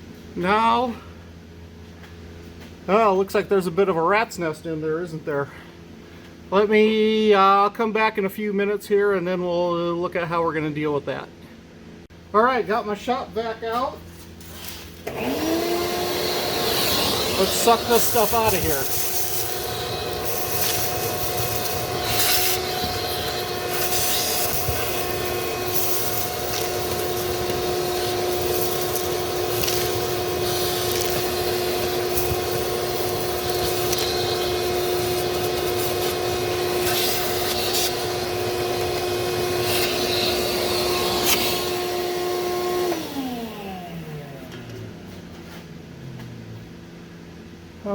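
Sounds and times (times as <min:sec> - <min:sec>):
shop vac running: 0:00.0 - 0:47.9
vacuum motor spinning down: 0:15.0 - 0:45.1.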